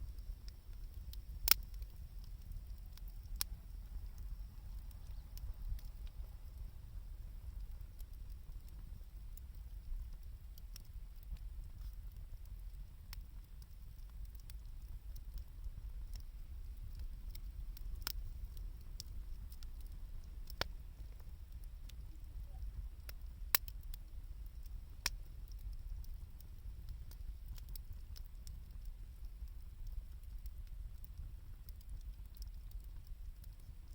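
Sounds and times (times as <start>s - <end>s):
campfire crackling and popping: 0.0s - 33.9s.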